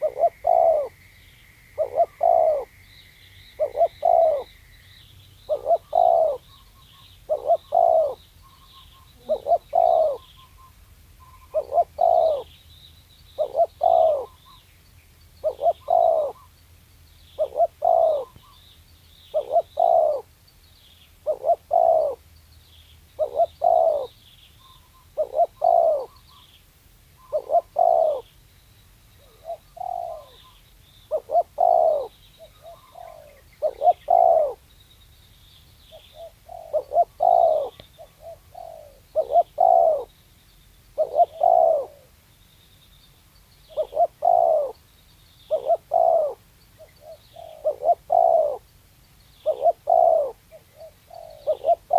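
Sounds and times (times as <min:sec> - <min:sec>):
dove cooing: 0:00.0 - 0:01.1, 0:01.7 - 0:02.8, 0:03.5 - 0:04.6, 0:05.5 - 0:12.5, 0:13.4 - 0:14.6, 0:15.4 - 0:16.6, 0:17.4 - 0:18.6, 0:19.2 - 0:20.3, 0:21.2 - 0:22.3, 0:23.2 - 0:28.3, 0:29.2 - 0:34.7, 0:35.9 - 0:40.1, 0:41.0 - 0:42.2, 0:43.6 - 0:44.8, 0:45.5 - 0:48.7, 0:49.4 - 0:51.9
small birds chirping: 0:00.0 - 0:51.9.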